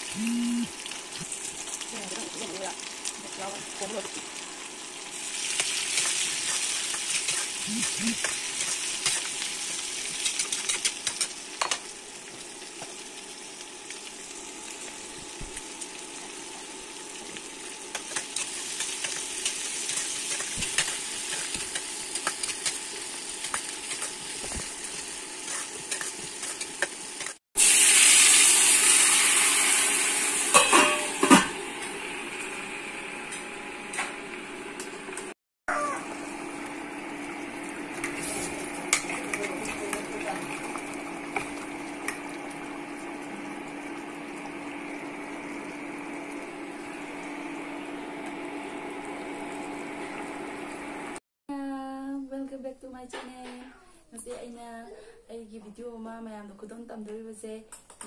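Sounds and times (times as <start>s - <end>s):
onions sizzling in a pan: 0.0s - 33.2s, 36.0s - 51.2s
spatula scraping and tapping pan: 25.5s - 27.4s.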